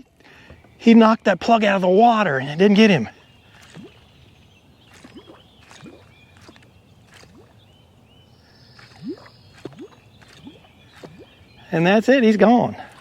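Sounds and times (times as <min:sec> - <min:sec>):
faint short rising bloops: 0:03.4 - 0:07.8, 0:08.6 - 0:11.7
faint high chirps: 0:03.4 - 0:11.8.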